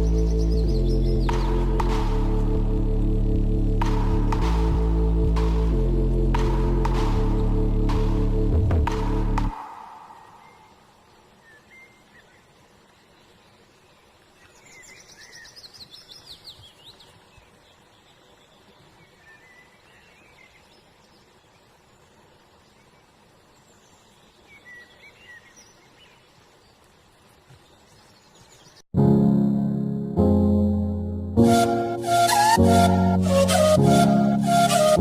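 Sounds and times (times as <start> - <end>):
birds chirping: 0.0 - 2.1, 9.5 - 28.8
faint outdoor hiss: 9.5 - 28.8.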